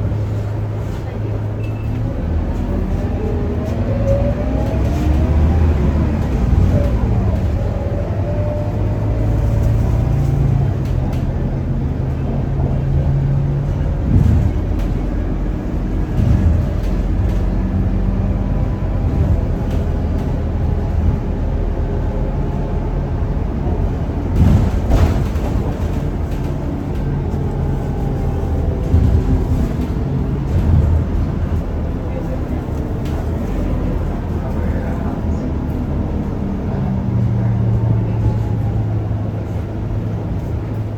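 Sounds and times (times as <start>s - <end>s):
bus diesel engine running: 0.0s - 40.9s
bus body knocks: 23.7s - 28.0s.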